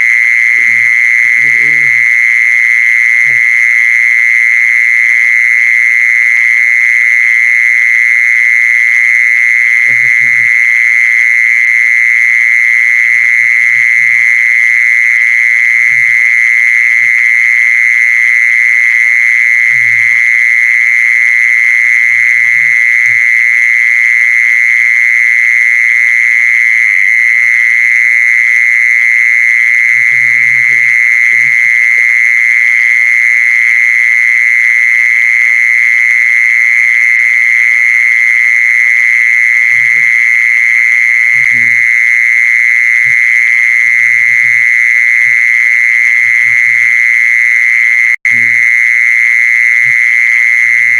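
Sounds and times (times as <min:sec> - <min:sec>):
short low calls: 0:00.0 - 0:02.3, 0:03.1 - 0:03.6, 0:09.8 - 0:10.6, 0:13.2 - 0:14.3, 0:19.6 - 0:20.2, 0:29.9 - 0:32.2, 0:39.7 - 0:40.2, 0:41.3 - 0:42.0, 0:43.0 - 0:45.5, 0:46.1 - 0:47.1, 0:48.3 - 0:48.8, 0:49.8 - 0:50.9
high-pitched buzzing drone: 0:00.0 - 0:04.1, 0:09.0 - 0:24.7, 0:25.5 - 0:35.3, 0:37.1 - 0:50.9.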